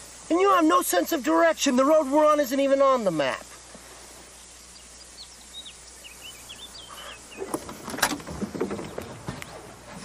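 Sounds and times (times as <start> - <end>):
quiet outdoor ambience: 0.0 - 10.0
bird chirping: 4.3 - 9.8
knocks and rustling in vehicle: 7.4 - 10.0.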